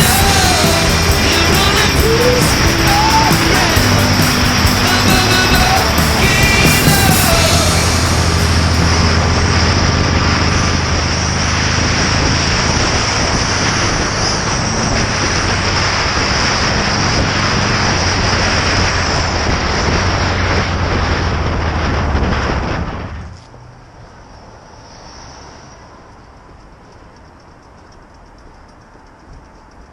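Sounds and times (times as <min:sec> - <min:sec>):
motorcycle engine running: 0:00.0 - 0:22.1
heavy wind rush: 0:00.0 - 0:26.7.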